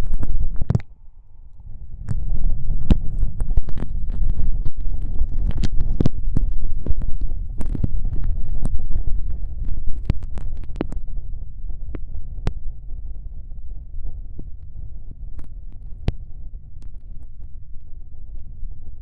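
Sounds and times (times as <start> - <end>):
deep muffled rumble: 0.0 - 19.0.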